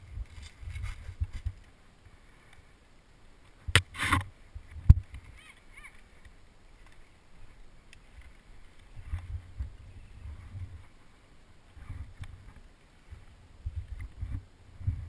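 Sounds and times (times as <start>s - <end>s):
brief rustle: 0.2s - 1.8s.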